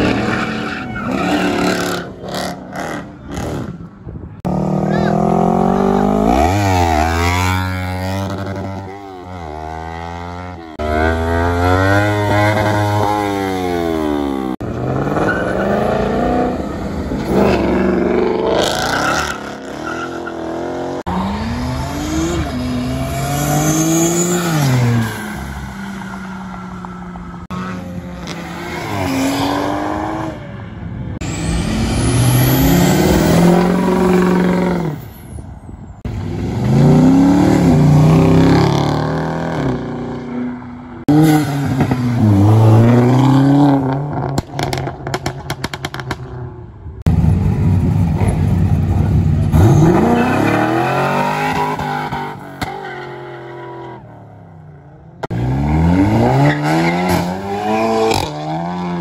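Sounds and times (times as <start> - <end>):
car engines accelerating: 0.0 - 35.1.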